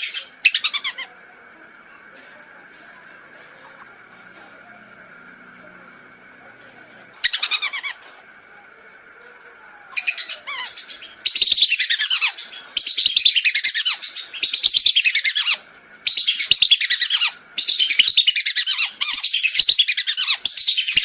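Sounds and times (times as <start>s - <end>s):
whistling ducks calling: 10.0s - 21.0s.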